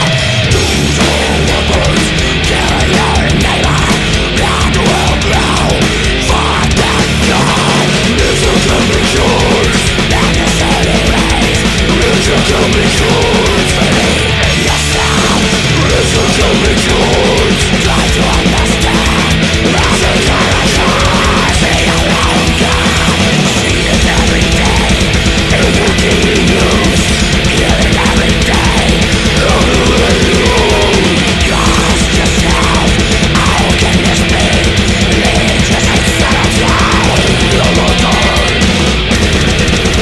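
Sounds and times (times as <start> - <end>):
distorted guitars: 0.0 - 40.0
drums: 0.0 - 40.0.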